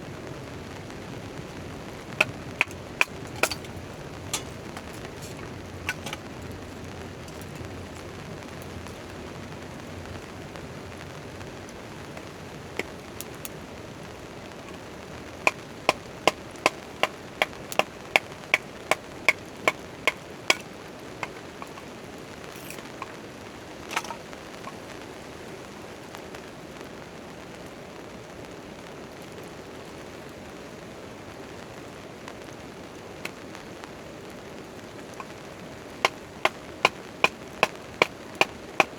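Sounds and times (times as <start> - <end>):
rain hiss: 0.0 - 38.9
wood being chopped: 2.2 - 6.2, 15.5 - 21.9, 22.6 - 23.1, 23.9 - 24.2, 36.0 - 38.9.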